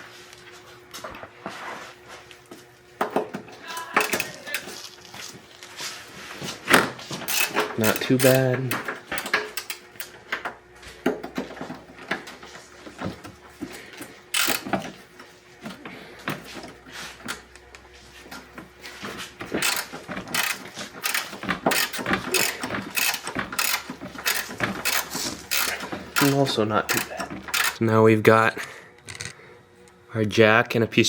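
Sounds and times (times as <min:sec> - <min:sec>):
socket ratchet clicking: 0:04.0 - 0:04.4, 0:07.3 - 0:10.1, 0:14.3 - 0:14.8, 0:19.6 - 0:27.8.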